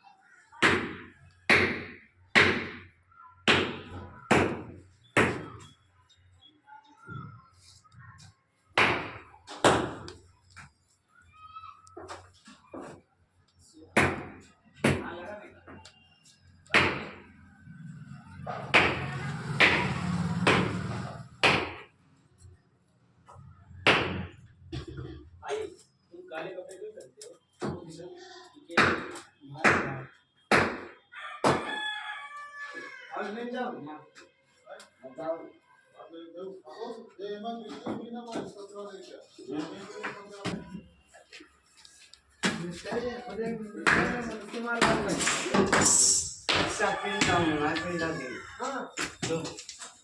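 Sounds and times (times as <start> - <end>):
sharp knocks of hard objects: 0.6 - 5.7, 8.7 - 10.2, 14.0 - 15.9, 16.6 - 17.3, 18.6 - 22.0, 23.8 - 25.1, 28.7 - 31.7, 42.4 - 42.9, 43.9 - 48.1
sharp knocks: 18.7 - 21.9, 43.9 - 47.8.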